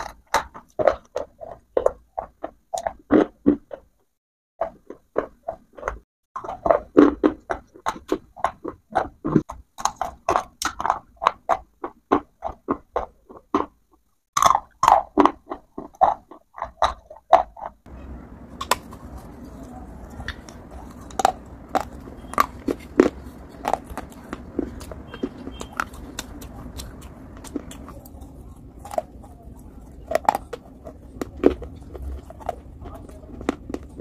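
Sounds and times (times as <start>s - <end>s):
crunching and chewing: 0.0s - 34.0s
mouth clicks: 18.6s - 34.0s.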